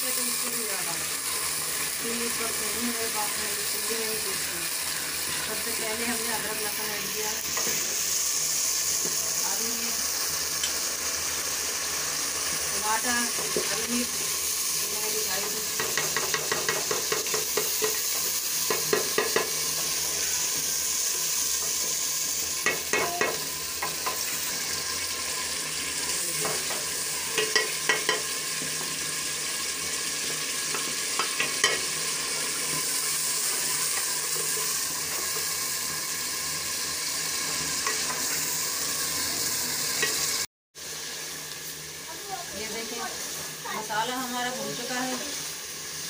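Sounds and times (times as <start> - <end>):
masala sizzling in oil: 0.0 - 46.0
wooden spoon knocking pot: 15.8 - 18.0, 18.7 - 19.6.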